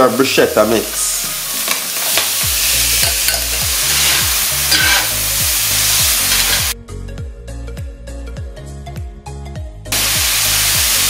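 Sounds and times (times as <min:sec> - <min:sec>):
background music with steady beat: 0:00.0 - 0:11.0
food sizzling in a skillet: 0:00.5 - 0:06.8, 0:09.9 - 0:11.0
spoon scraping a pan: 0:01.5 - 0:06.8.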